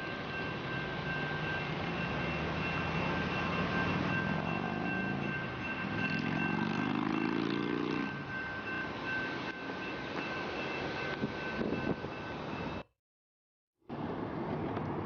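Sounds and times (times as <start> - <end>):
road and rail rumble: 0.0 - 12.9, 13.8 - 15.0
vehicle engine speeding up: 6.0 - 8.1.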